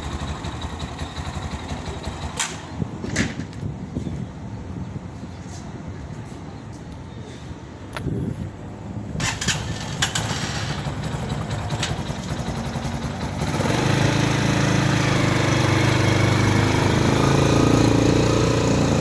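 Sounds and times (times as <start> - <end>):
motorcycle engine running: 0.0 - 2.5, 9.2 - 19.0.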